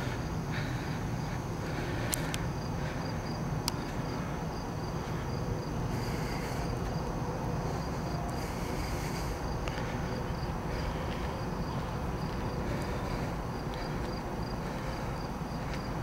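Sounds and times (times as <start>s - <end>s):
insects chirping: 0.0s - 16.0s
low steady rumble: 0.0s - 16.0s
faint clicks: 2.0s - 2.5s, 3.6s - 3.9s.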